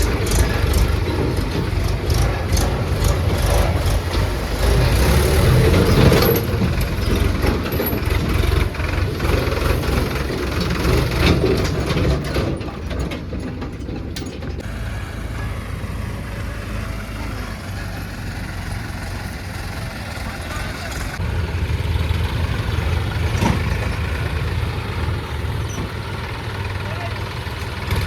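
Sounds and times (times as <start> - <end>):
metallic clanks and rattles: 0.0 - 14.7, 22.6 - 26.8
diesel tractor engine running: 0.0 - 28.0.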